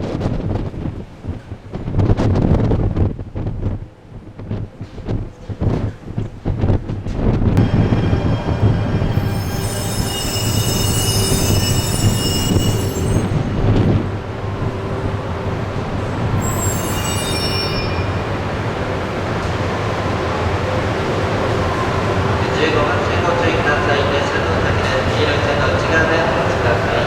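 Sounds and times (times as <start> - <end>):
train low rumble: 0.0 - 27.0
high-pitched wheel squeal: 7.6 - 15.0, 16.0 - 18.6.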